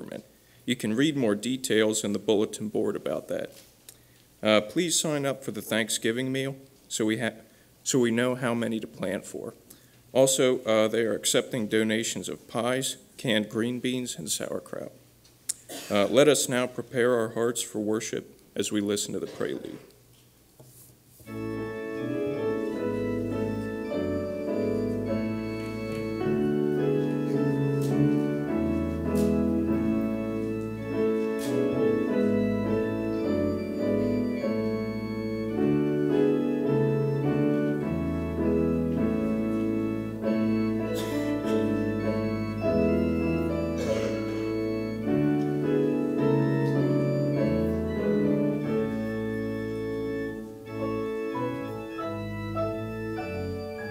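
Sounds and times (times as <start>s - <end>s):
organ playing chords: 21.2s - 53.9s.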